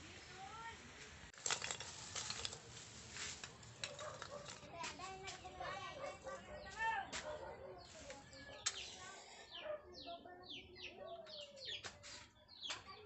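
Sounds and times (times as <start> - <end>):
birds chirping: 3.4 - 13.0.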